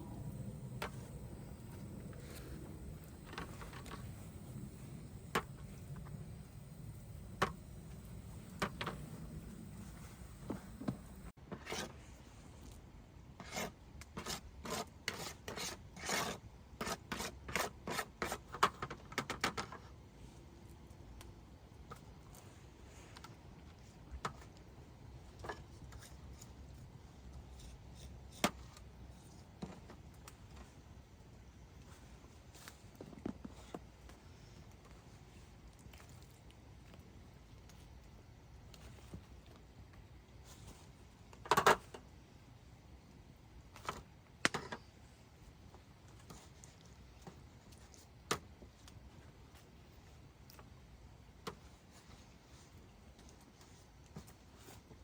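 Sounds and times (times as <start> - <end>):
faint steady hiss: 0.0 - 13.4
faint steady background noise: 0.0 - 55.0.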